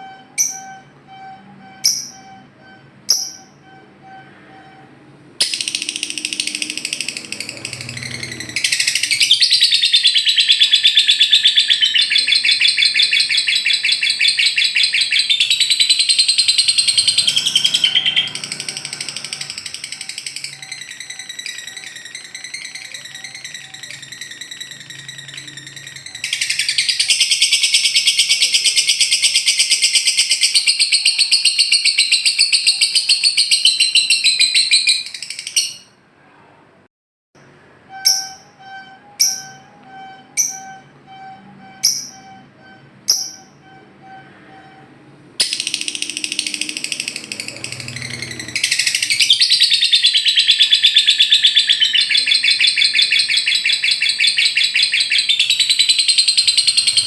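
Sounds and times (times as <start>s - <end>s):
bird chattering trill: 5.4s - 35.9s, 45.4s - 57.0s
sharp bird chirps: 5.4s - 36.0s, 37.9s - 44.7s, 45.4s - 57.0s.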